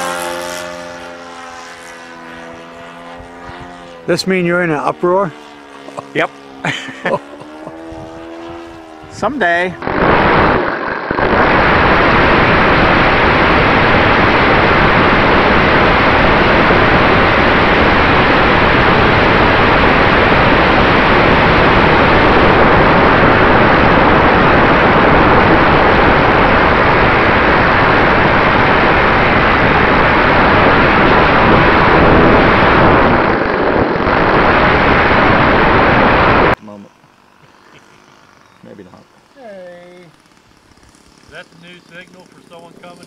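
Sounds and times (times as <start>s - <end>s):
wind rushing over microphone: 5.8s - 36.6s.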